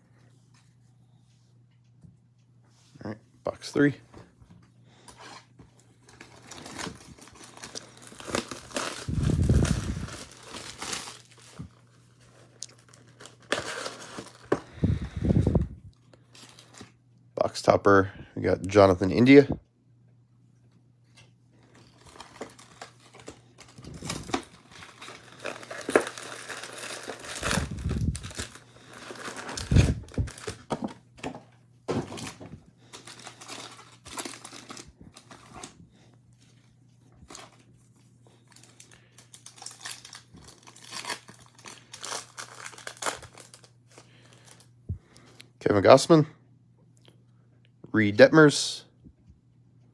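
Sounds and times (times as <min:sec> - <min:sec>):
plastic wrapper tearing and crinkling: 0:06.0 - 0:15.6, 0:16.2 - 0:17.0, 0:21.6 - 0:30.9, 0:32.1 - 0:35.8, 0:38.4 - 0:44.7.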